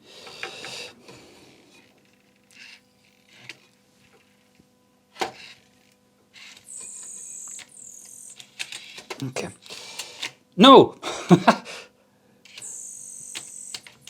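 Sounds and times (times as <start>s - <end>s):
disc loading mechanism whirring: 5.2s - 10.4s, 12.4s - 14.0s.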